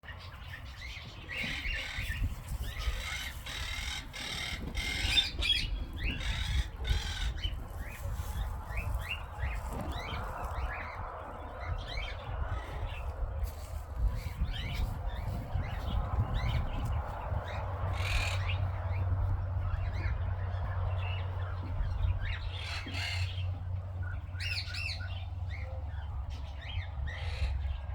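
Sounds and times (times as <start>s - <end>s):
steady low rumble: 0.1s - 27.9s
birds squawking: 0.2s - 10.8s, 19.7s - 27.8s.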